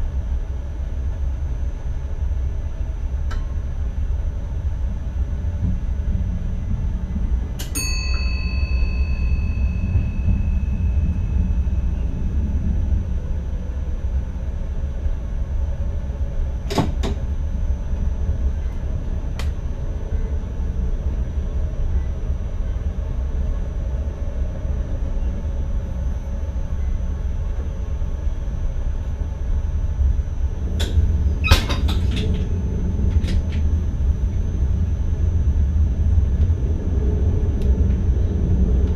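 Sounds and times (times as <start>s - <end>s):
electric train rumble: 0.0s - 38.9s
metallic ding: 7.8s - 11.0s
faint high whine: 7.8s - 14.1s.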